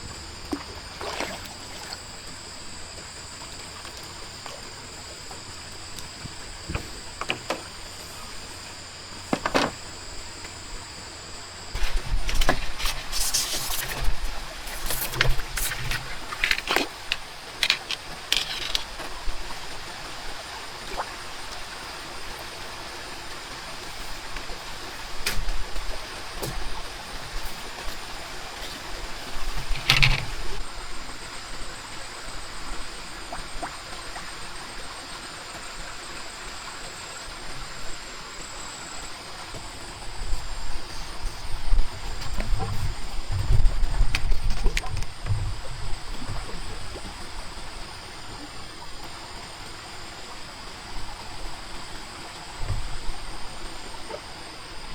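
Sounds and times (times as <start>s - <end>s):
knocks and clattering handling noises: 6.0s - 8.4s, 9.2s - 10.6s, 29.5s - 30.6s.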